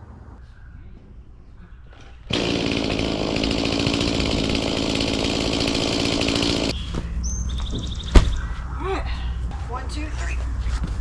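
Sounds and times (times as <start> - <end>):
chainsaw running at high revs: 2.3 - 6.7.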